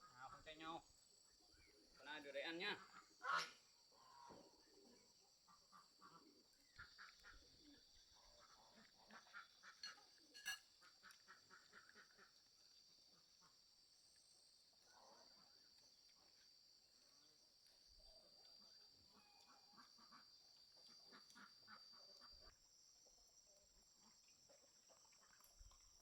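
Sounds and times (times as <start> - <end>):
faint rapid animal calls: 2.0 - 12.5, 18.0 - 22.5.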